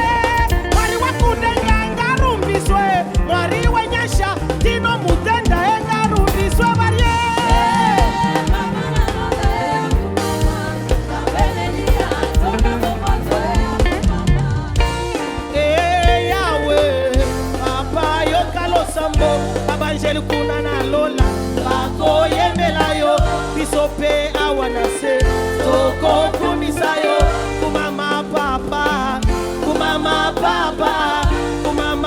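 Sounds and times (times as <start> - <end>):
bass: 0.0 - 32.0
drum kit: 0.0 - 32.0
melodic lines: 0.0 - 32.0
person singing: 0.0 - 32.0.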